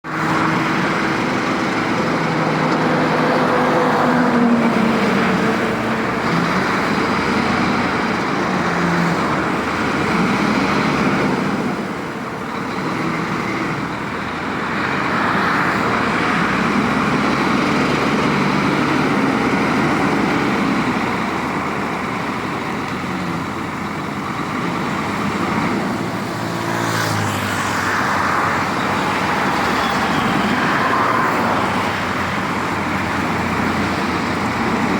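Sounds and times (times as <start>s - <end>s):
diesel truck engine revving: 0.0s - 34.9s
road noise: 0.0s - 34.9s.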